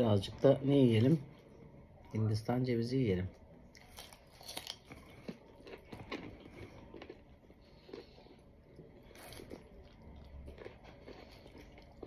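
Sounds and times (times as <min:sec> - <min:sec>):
chewing coconut crunches: 0:03.6 - 0:12.0.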